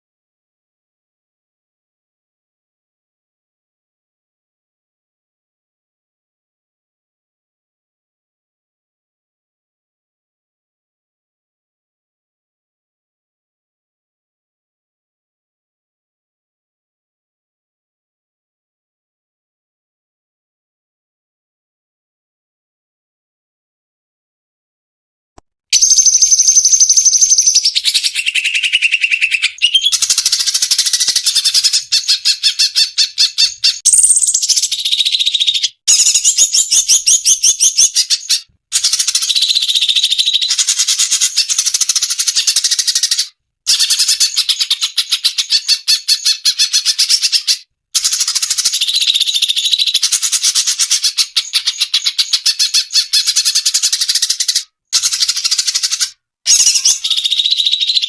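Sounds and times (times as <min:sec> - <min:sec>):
recorded bird song chattering: 0:25.7 - 0:58.0.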